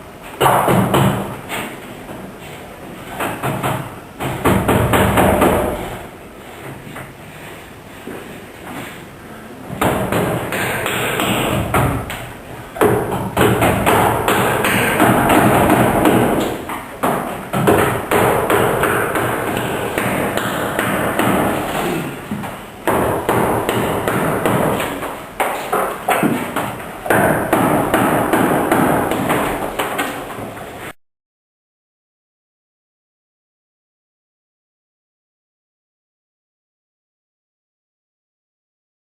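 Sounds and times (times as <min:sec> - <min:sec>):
mallets knocking on chisels: 0:09.8 - 0:21.8.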